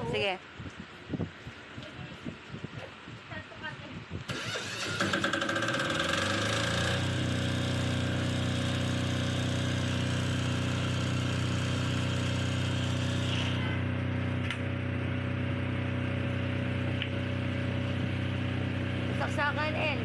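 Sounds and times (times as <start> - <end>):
diesel generator running: 4.3 - 20.0.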